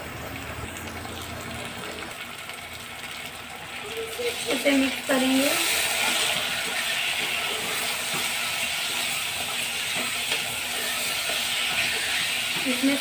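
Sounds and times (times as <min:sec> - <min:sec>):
meat sizzling in hot oil: 0:00.1 - 0:13.0
spatula scraping a pot: 0:05.6 - 0:13.0.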